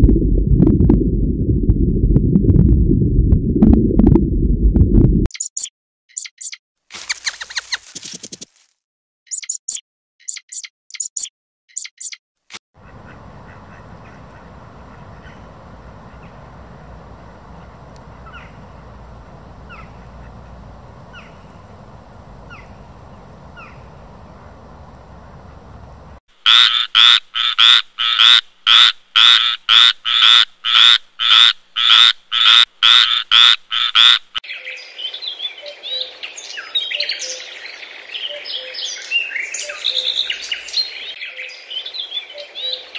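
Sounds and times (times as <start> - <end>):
bird chirping: 5.3 - 8.1, 9.3 - 12.2, 12.8 - 26.2, 34.5 - 42.9
high animal squeaks: 9.3 - 12.2
background hiss: 12.8 - 26.2
evenly repeated animal calls: 26.4 - 34.4.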